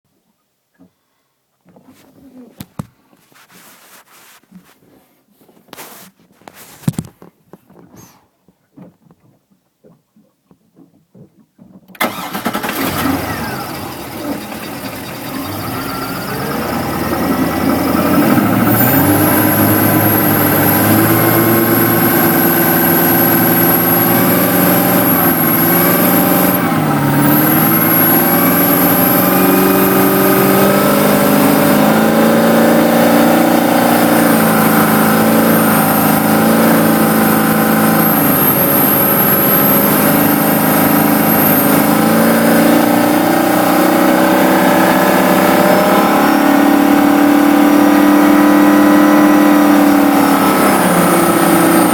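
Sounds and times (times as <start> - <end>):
engine revving: 12.0 - 51.9
high-pitched whine: 13.3 - 32.2.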